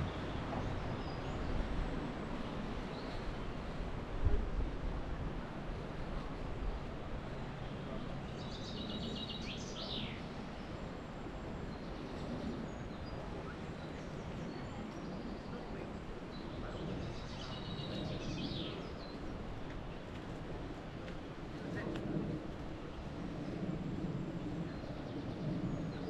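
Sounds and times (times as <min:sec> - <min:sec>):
wind: 0:00.0 - 0:26.0
songbird singing: 0:08.3 - 0:10.3, 0:11.7 - 0:19.4.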